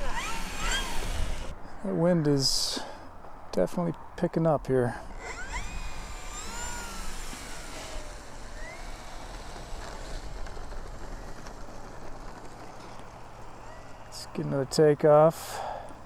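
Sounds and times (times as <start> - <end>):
model plane motor whine: 0.0 - 1.5, 5.0 - 12.6
wind on microphone: 0.0 - 1.7.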